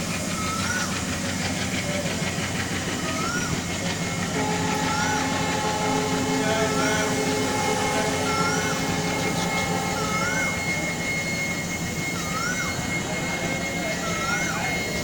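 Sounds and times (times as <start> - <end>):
passenger train rumbling: 0.0 - 15.0
held tones: 3.9 - 15.0.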